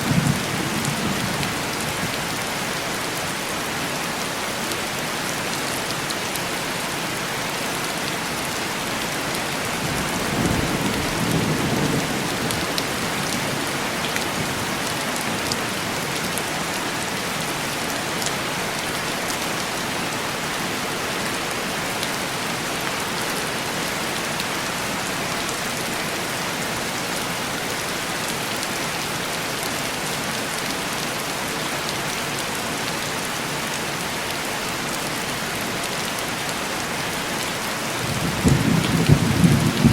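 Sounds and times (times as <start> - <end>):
heavy rain on a window: 0.0 - 39.9
thunder rumble: 38.0 - 39.9.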